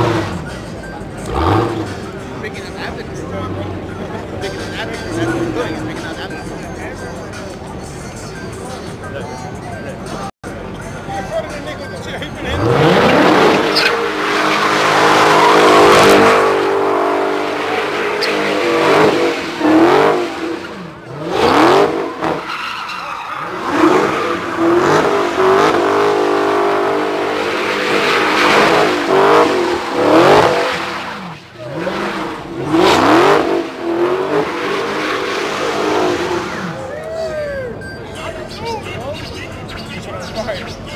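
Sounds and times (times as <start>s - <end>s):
car engine revving: 0.0s - 8.2s, 12.2s - 36.9s
tyres squealing: 12.5s - 16.5s, 17.5s - 19.8s, 20.4s - 32.3s.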